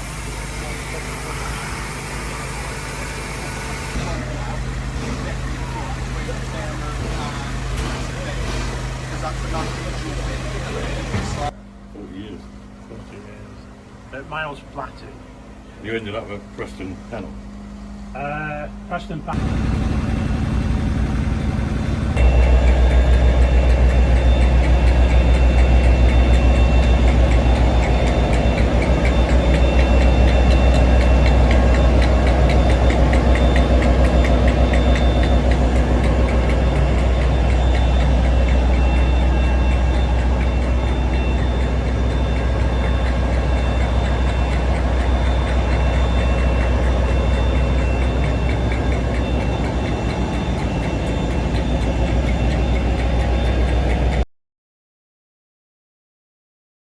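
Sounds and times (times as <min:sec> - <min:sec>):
locomotive engine rumbling: 0:00.0 - 0:54.2.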